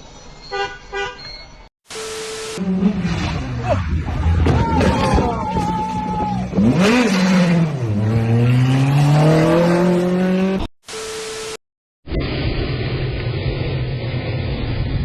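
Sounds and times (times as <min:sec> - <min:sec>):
brief steady tone: 0:01.2 - 0:02.7, 0:10.9 - 0:11.6
vehicle engine revving: 0:02.6 - 0:04.3, 0:06.5 - 0:11.5.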